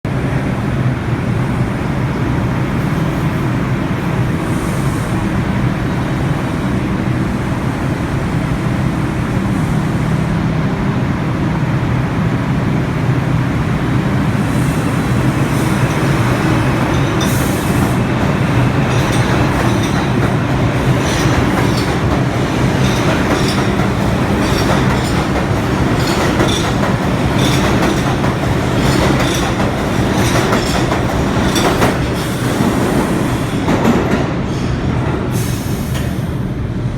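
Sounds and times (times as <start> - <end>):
subway train rumbling: 0.0 - 36.9
wheels clacking over rail joints: 13.2 - 33.0.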